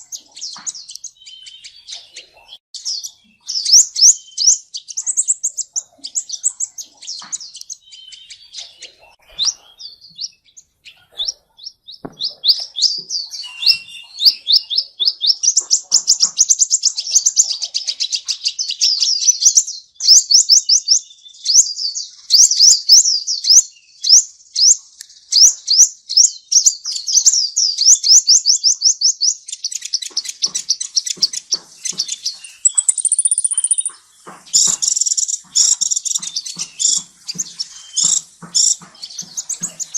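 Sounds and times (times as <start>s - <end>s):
songbird chirping: 0.0s - 39.9s
bird whistle: 12.1s - 17.2s, 31.8s - 34.0s.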